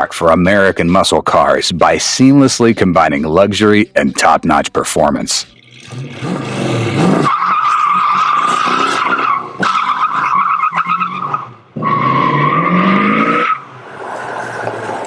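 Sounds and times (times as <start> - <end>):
car engine revving: 5.4 - 15.0
car tyres squealing: 5.7 - 15.0.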